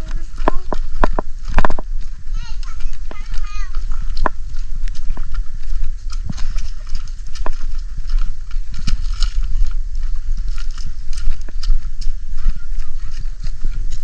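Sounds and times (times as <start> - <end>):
footsteps on a road: 0.0 - 14.0
microphone handling noise: 0.0 - 14.0
wind rumble on microphone: 0.0 - 14.0.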